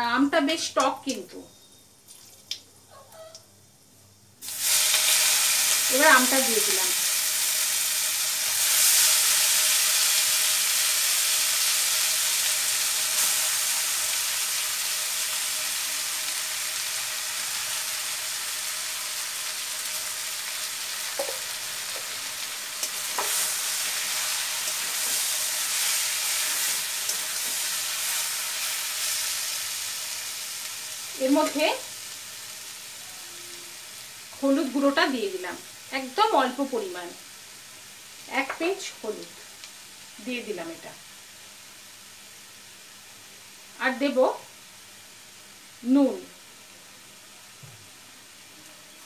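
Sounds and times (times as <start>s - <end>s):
mango sizzling in hot oil: 4.1s - 49.0s
spatula knocking and scraping wok: 21.1s - 27.8s.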